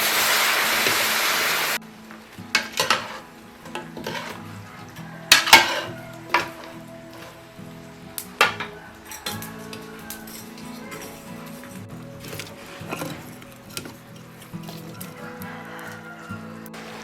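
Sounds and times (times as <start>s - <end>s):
food sizzling in a pan: 0.0s - 12.0s
metal utensil scraping a pan: 2.5s - 7.4s, 8.4s - 16.0s.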